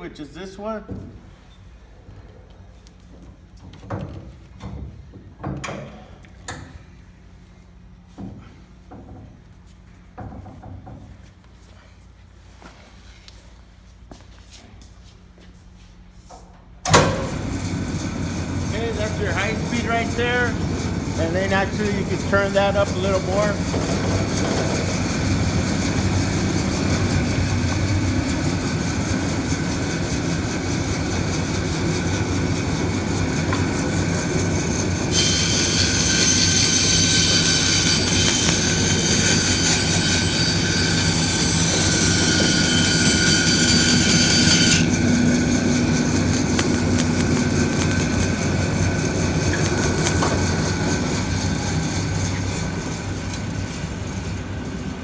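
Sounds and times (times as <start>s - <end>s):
bandsaw humming: 16.9s - 55.0s.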